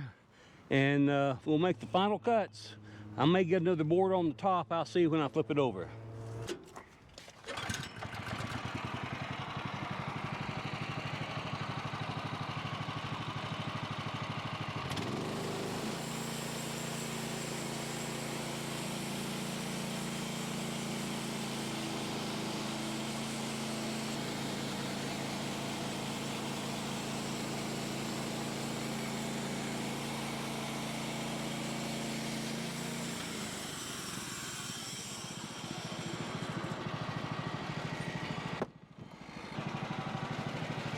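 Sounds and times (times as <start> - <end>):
engine revving: 14.8 - 32.7.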